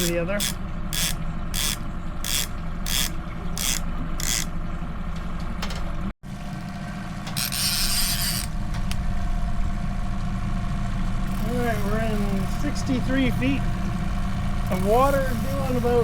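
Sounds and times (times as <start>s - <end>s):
boat motor running: 0.0s - 16.0s
mechanical clicking: 0.4s - 4.5s.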